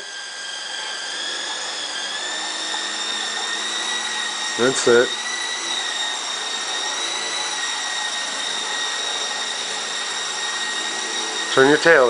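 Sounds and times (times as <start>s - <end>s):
rc helicopter whine: 0.0s - 12.0s.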